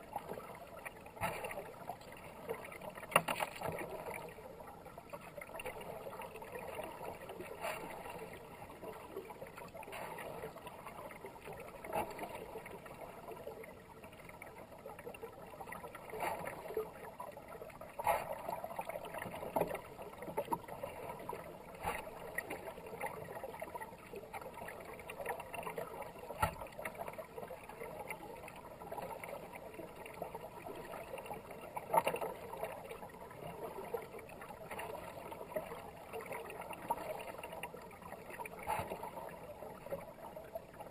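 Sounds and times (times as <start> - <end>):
paddle strokes splashing: 0.0 - 4.3, 5.2 - 10.8, 17.9 - 21.0
fast-moving river water: 0.0 - 40.9.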